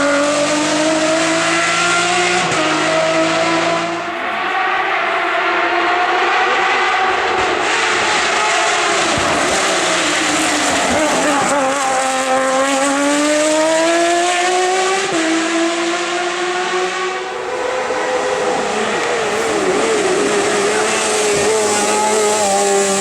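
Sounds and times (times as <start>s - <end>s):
race car engine accelerating: 0.0s - 23.0s.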